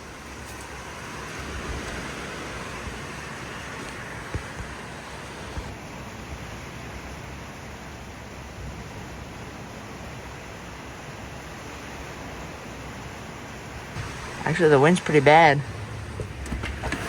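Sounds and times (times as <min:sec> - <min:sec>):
strong wind gusting: 0:00.0 - 0:05.8, 0:11.0 - 0:17.0.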